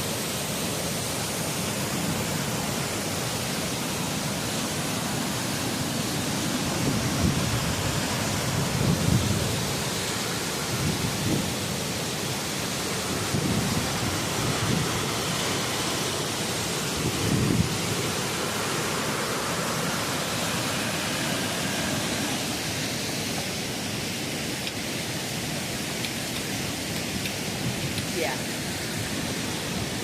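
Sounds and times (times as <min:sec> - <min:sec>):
water rushing below a dam: 0:00.0 - 0:30.0
wind gusts on microphone: 0:06.6 - 0:10.0, 0:10.6 - 0:11.8, 0:13.1 - 0:15.3, 0:16.8 - 0:18.4.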